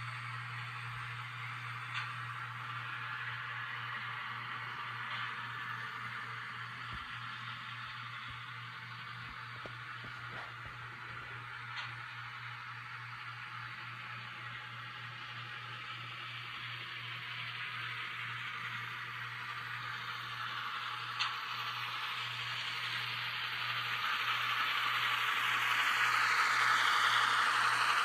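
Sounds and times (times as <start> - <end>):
model locomotive hiss and hum: 0.0 - 28.0.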